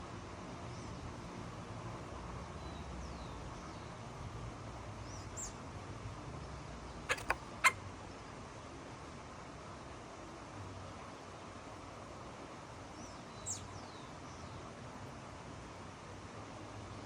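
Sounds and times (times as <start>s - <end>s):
small birds chirping: 5.0s - 5.6s, 6.9s - 7.8s, 12.8s - 14.7s.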